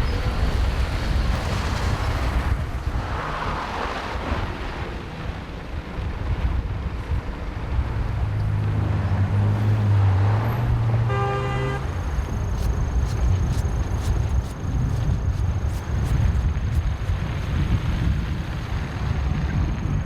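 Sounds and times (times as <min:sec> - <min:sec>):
vehicle engine passing: 0:07.3 - 0:17.6
car horn toot: 0:11.0 - 0:12.0.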